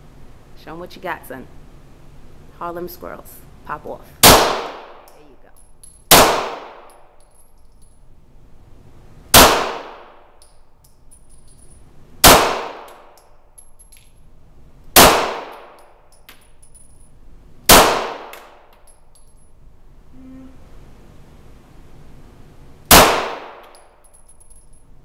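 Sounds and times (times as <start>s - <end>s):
gunshots: 9.4s - 10.1s, 15.0s - 15.7s, 17.7s - 18.3s, 22.9s - 23.6s.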